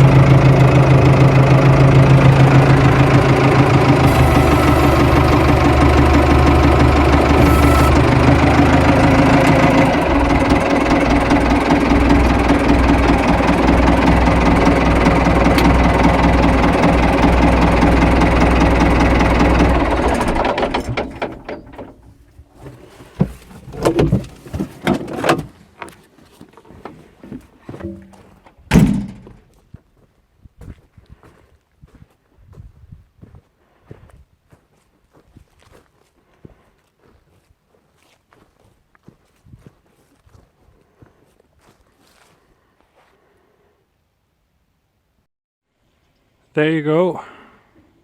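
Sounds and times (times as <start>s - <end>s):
engine running: 0.0s - 24.7s
knocks and clatters: 0.0s - 25.5s, 27.8s - 29.5s.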